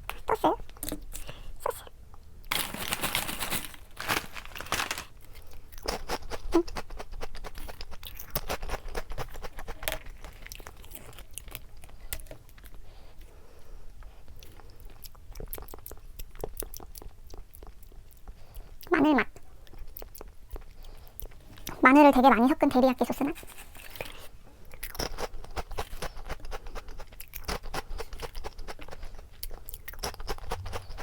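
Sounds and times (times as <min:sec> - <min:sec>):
crunching snack sticks: 0:02.4 - 0:12.7, 0:23.8 - 0:31.0.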